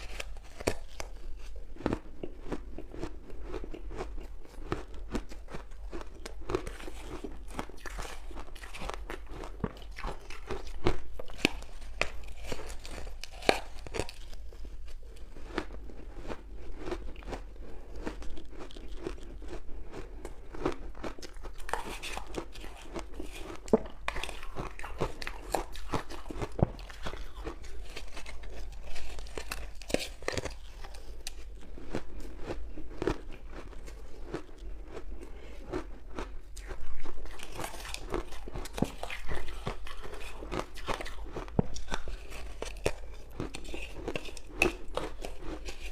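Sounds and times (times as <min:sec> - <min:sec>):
ice cubes crunching when chewed: 0:00.0 - 0:45.9.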